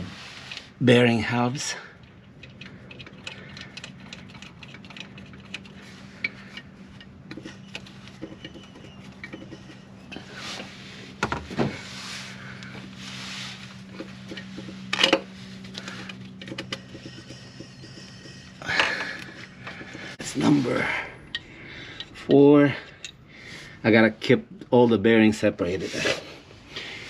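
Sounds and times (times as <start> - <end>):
steady low hum: 0.0 - 27.0
metal parts clicking and clinking: 14.2 - 20.5.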